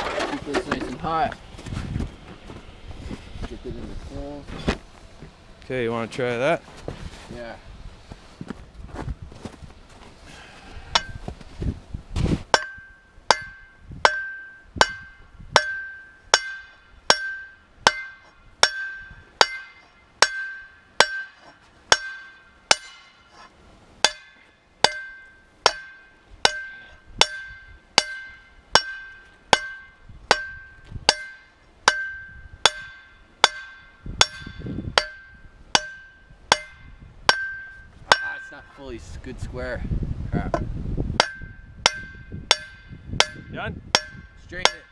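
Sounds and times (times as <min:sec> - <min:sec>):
hammer striking hot steel: 0:12.5 - 0:38.8, 0:40.5 - 0:44.9.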